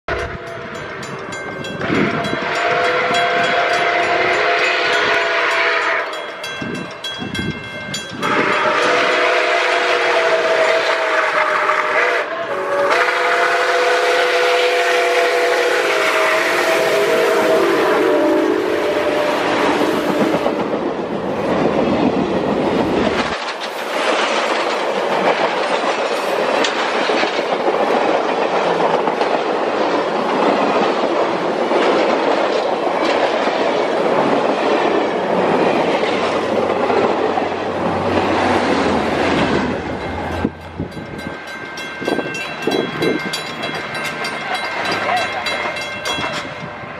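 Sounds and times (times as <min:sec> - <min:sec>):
train wheels clattering on rails: 0:00.1 - 0:11.9, 0:12.8 - 0:46.9.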